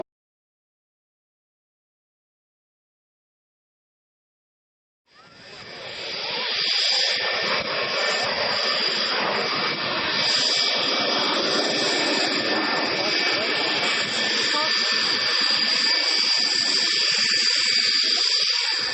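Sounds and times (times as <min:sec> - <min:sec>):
high jet whine: 0:05.1 - 0:18.9
jet engine rush: 0:05.1 - 0:18.9.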